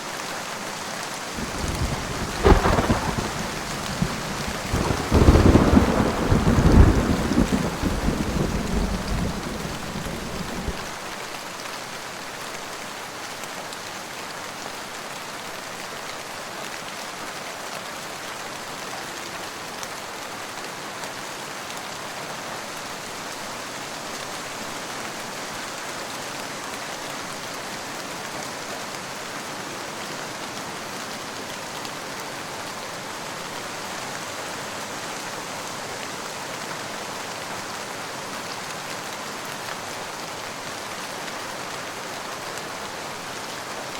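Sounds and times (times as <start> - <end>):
steady rain hiss: 0.0 - 43.9
low thunder rumble: 1.4 - 11.0.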